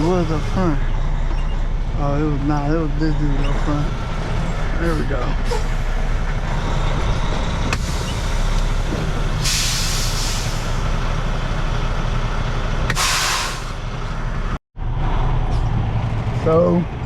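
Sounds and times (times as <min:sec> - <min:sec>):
truck diesel engine running: 0:00.0 - 0:17.0
air brake hiss: 0:09.4 - 0:10.8, 0:12.9 - 0:13.8.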